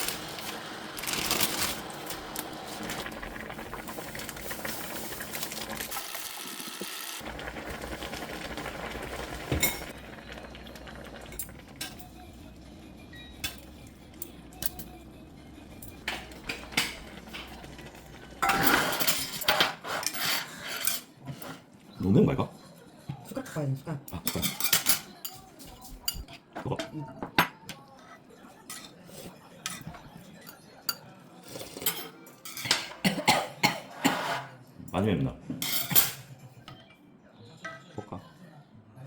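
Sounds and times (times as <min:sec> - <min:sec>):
utensils clinking on pots: 0:00.0 - 0:15.0, 0:15.6 - 0:21.6, 0:24.1 - 0:34.6, 0:35.6 - 0:37.0
steady cooking hiss: 0:00.0 - 0:20.8.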